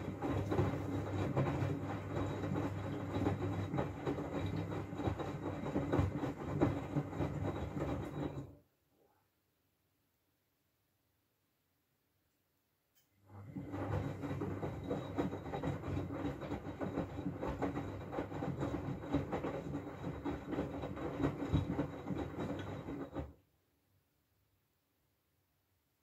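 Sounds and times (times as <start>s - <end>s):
washing machine motor hum: 0.0s - 8.7s, 13.2s - 23.4s.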